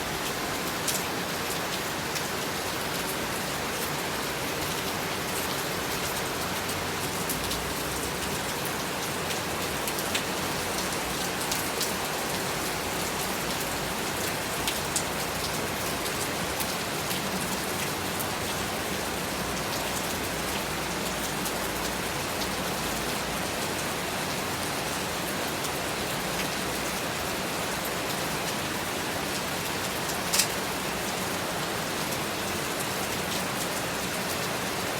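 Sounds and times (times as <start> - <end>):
raindrops tapping nearby surfaces: 29.3 - 30.8.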